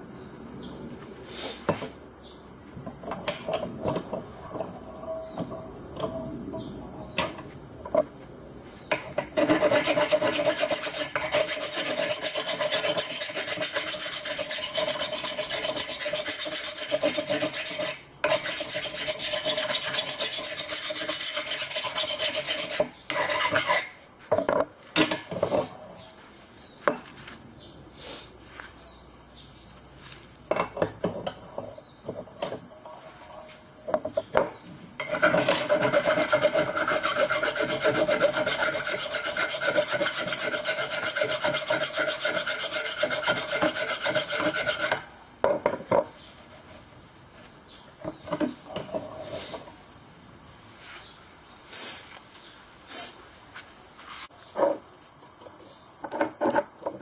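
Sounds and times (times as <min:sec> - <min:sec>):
tool rasping and scraping: 0:09.0 - 0:24.0, 0:35.0 - 0:45.1
parts clicking and knocking: 0:54.6 - 0:57.0.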